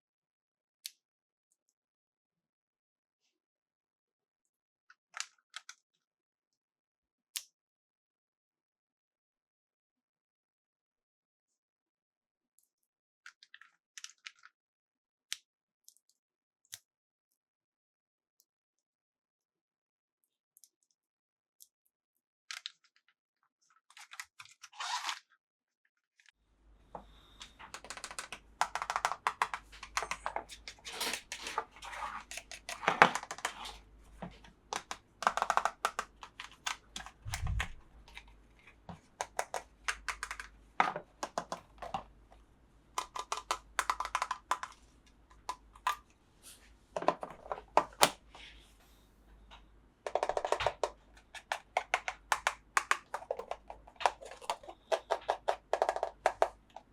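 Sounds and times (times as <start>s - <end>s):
plastic and cardboard crinkling: 26.9s - 48.8s, 49.5s - 56.9s
small sharp clicks and taps: 27.0s - 46.2s, 49.5s - 56.9s.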